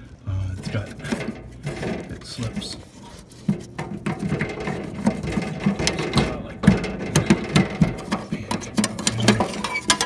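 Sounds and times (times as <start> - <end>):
screwdriver clicking on sheet metal: 2.9 - 10.0.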